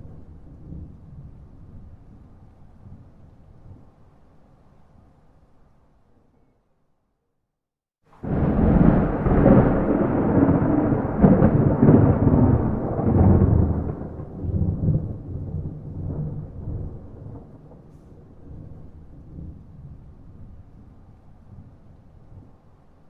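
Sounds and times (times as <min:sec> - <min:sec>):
thunder rumbling and crackling: 0:00.0 - 0:03.8, 0:08.2 - 0:22.6.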